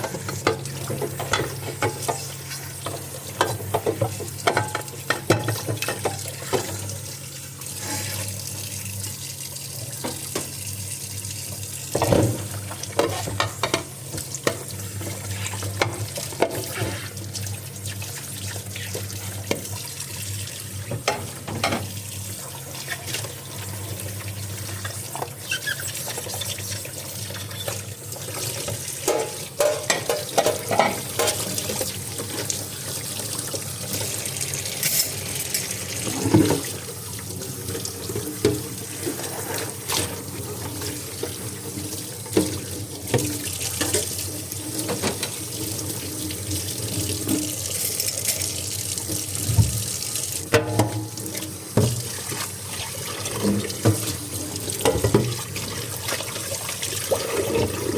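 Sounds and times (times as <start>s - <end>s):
dishes clinking in sink: 0.0s - 6.9s, 10.0s - 10.6s, 11.9s - 14.7s, 20.9s - 22.0s, 28.6s - 32.6s, 33.9s - 36.8s, 44.8s - 45.5s, 50.5s - 52.4s, 54.8s - 55.4s
tap water running into sink: 0.0s - 57.9s.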